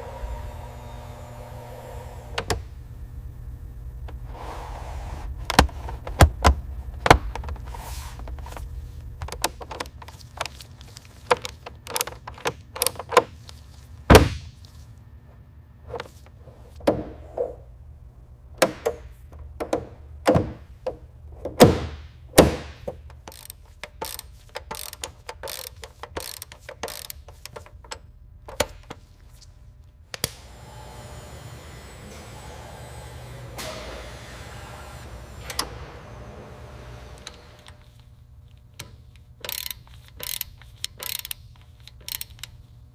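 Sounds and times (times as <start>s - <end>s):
low hum: 0.0s - 9.4s
parts scraping: 4.1s - 15.0s, 23.0s - 29.6s
hand tools clicking and knocking: 9.2s - 13.3s, 22.8s - 29.0s, 38.8s - 42.6s.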